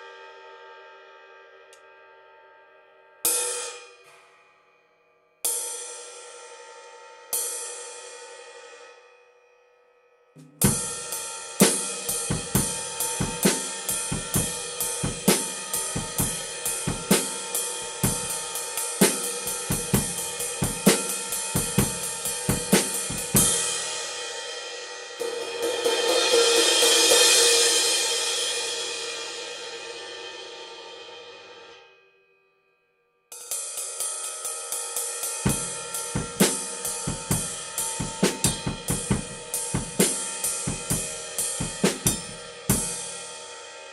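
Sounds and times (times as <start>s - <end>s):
ride cymbal played with a stick: 3.2s - 9.4s, 10.4s - 32.0s, 33.3s - 43.9s
bass drum strokes: 19.1s - 23.8s, 35.5s - 43.1s.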